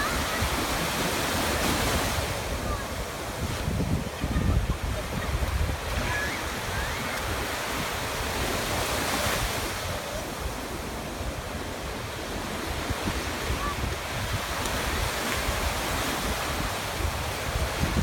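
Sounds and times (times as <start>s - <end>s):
waves breaking: 0.0s - 18.0s
wind buffeting microphone: 0.0s - 18.0s.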